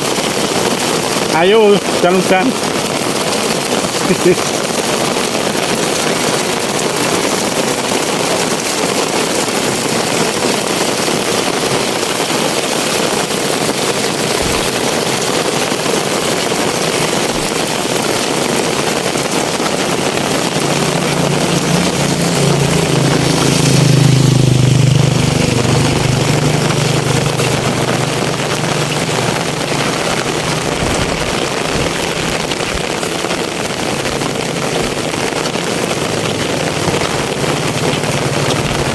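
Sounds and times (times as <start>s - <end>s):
heavy rain pouring: 0.0s - 38.9s
vehicle engine passing: 20.0s - 38.9s.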